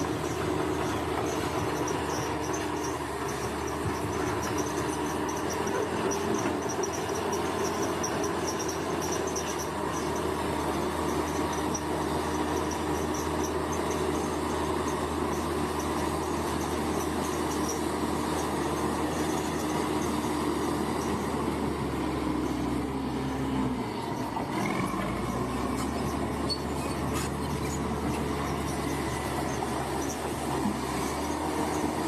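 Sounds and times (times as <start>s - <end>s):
insects chirping: 0.0s - 23.3s
bulldozer diesel engine running: 0.0s - 32.0s.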